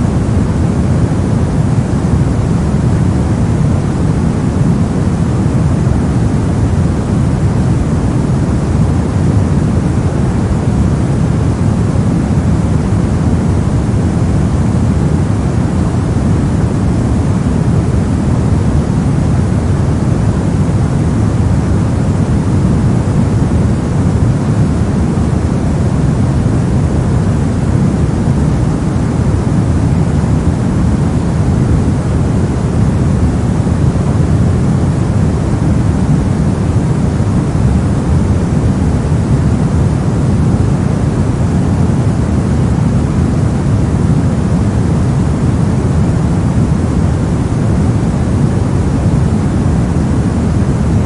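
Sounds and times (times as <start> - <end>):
brown noise: 0.0 - 51.0.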